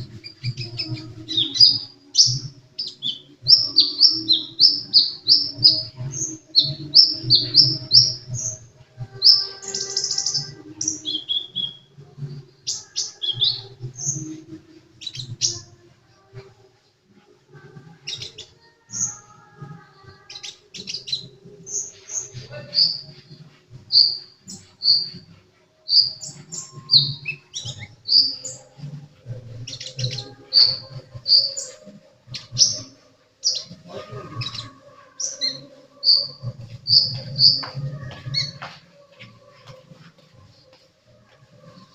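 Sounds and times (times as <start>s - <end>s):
bird chirping and whistling: 0.2s - 8.5s, 9.2s - 11.9s, 23.9s - 25.2s, 25.9s - 28.7s, 29.7s - 33.8s, 34.4s - 38.7s.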